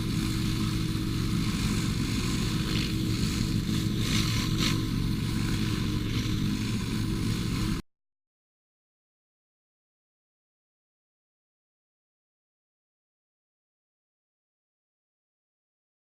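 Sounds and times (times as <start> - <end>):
pressure washer engine running: 0.0 - 7.8
water spray hiss: 0.0 - 7.8.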